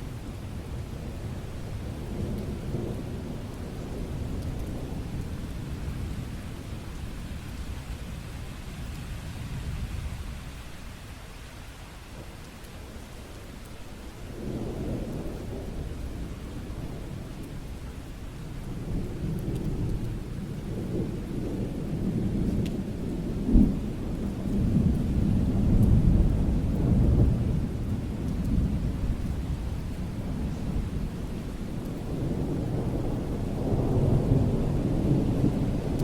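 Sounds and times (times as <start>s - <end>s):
steady rain: 0.0s - 36.0s
thunder rumbling: 18.7s - 36.0s.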